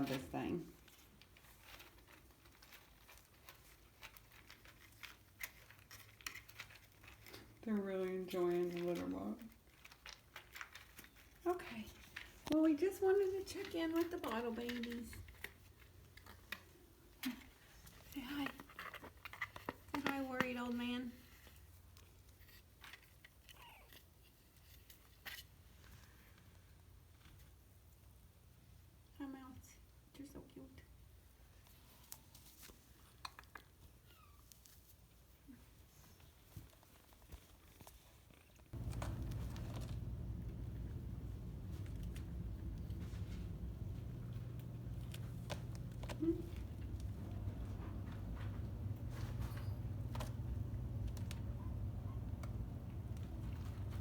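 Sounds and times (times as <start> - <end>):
kittens scratching in litter box: 0.0 - 27.7, 31.6 - 54.0
faint scratching: 38.8 - 54.0.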